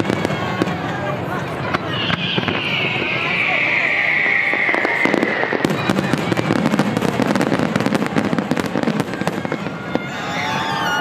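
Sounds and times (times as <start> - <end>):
firework crackling pops: 0.0 - 10.2
firework whistle falling in pitch: 1.7 - 6.4.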